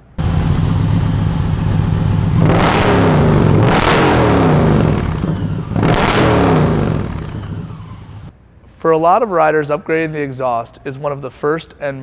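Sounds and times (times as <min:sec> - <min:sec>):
motorcycle engine revving: 0:00.0 - 0:08.3.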